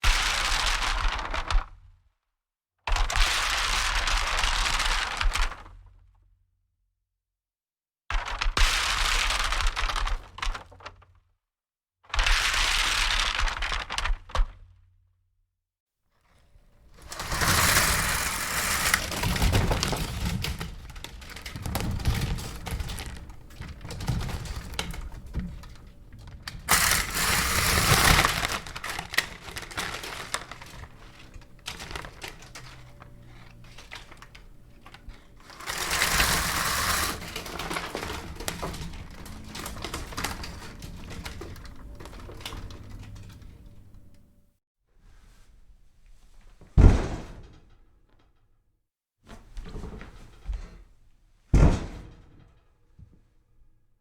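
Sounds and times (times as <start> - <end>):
window blinds slats rattling: 16.6 - 44.3.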